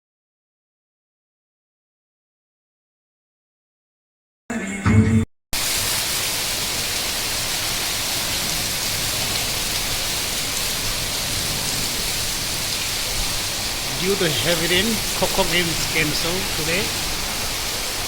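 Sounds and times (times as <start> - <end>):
heavy rain hissing: 5.6 - 18.0.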